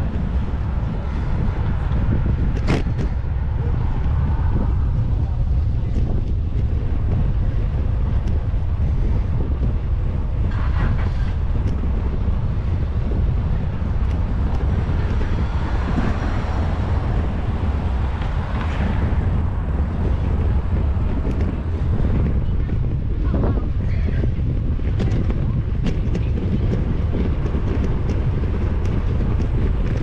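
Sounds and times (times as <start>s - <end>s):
faint street sounds: 0.0s - 30.0s
wind buffeting microphone: 0.0s - 30.0s.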